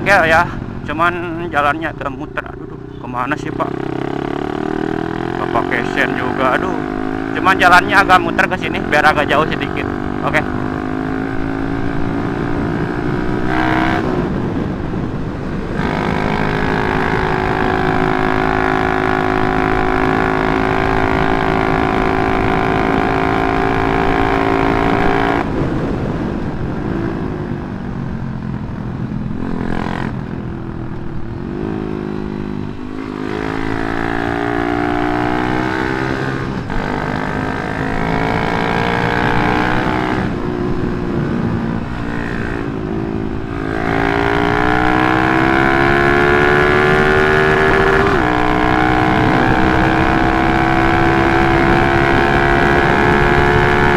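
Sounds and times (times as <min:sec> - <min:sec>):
motorcycle engine revving: 0:00.0 - 0:26.1, 0:28.2 - 0:53.9.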